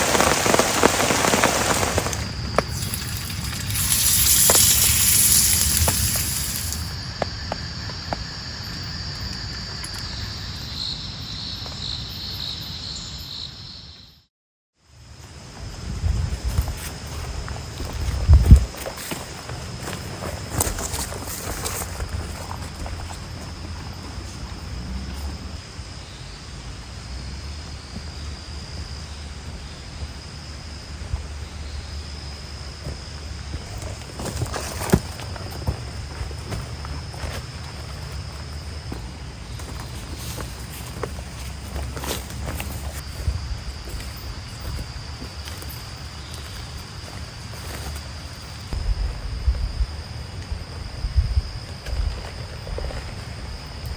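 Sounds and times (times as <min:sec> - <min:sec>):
rain: 0:00.0 - 0:07.0
high-pitched insect drone: 0:00.0 - 0:14.2, 0:15.4 - 0:53.9
crickets trilling: 0:00.0 - 0:53.9.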